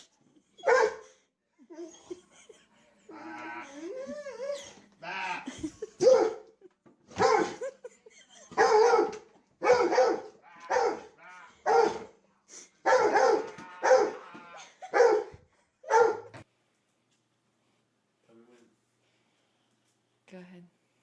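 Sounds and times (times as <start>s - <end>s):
dog barking: 0.6s - 1.0s, 6.0s - 6.4s, 7.2s - 7.7s, 8.6s - 12.1s, 12.8s - 14.2s, 14.9s - 16.3s.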